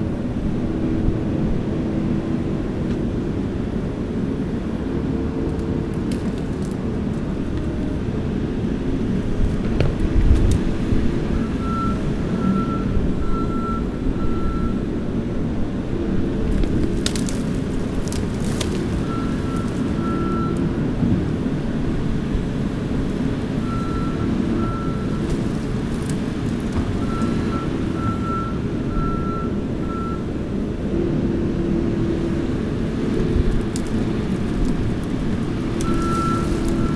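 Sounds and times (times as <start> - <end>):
skid steer engine running: 0.0 - 36.9
backup alarm beeps: 11.4 - 14.8.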